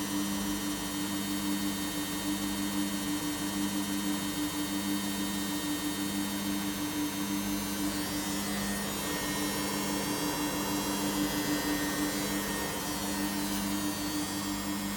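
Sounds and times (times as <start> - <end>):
washing machine motor hum: 3.8 - 14.9.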